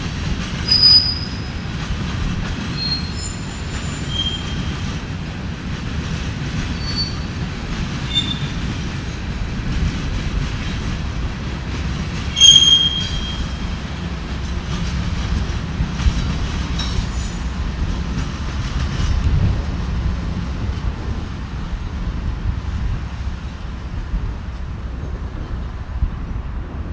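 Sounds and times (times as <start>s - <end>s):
locomotive rumble: 0.0s - 26.9s
wheel and rail noise: 0.0s - 26.9s
high wheel squeals: 0.6s - 1.7s, 2.7s - 4.8s, 6.7s - 7.3s, 8.1s - 8.6s, 12.3s - 14.1s.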